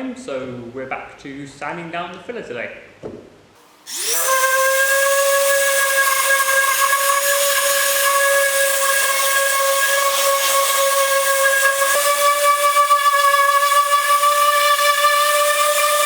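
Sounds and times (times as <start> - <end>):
power sander whining: 3.9 - 16.0.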